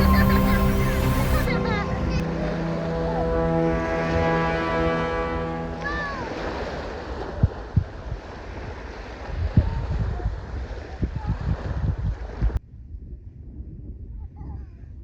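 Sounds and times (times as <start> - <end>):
surf rushing: 0.0 - 9.5
wind buffeting microphone: 6.1 - 15.0.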